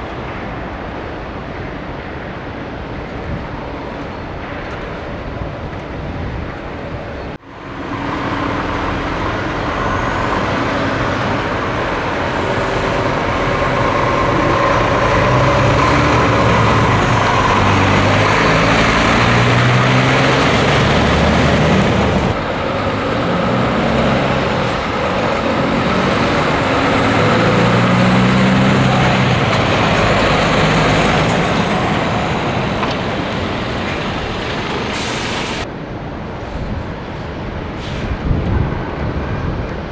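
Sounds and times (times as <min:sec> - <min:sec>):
truck engine under load: 0:07.6 - 0:35.7.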